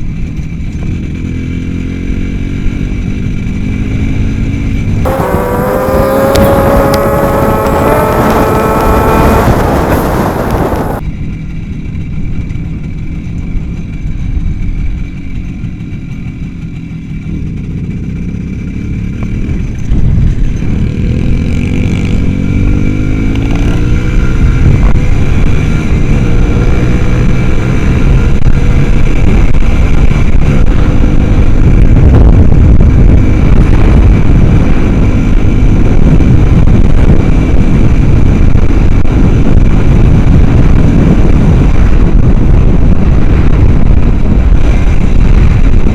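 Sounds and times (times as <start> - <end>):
motorcycle engine accelerating: 0.0 - 11.5, 12.4 - 45.9.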